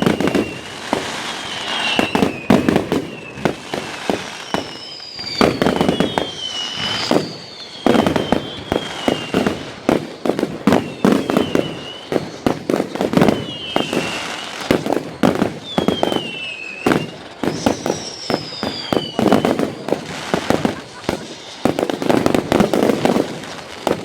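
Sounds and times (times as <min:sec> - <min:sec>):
fireworks bangs and crackles: 0:00.0 - 0:24.0
fireworks whistles falling in pitch: 0:00.0 - 0:24.0.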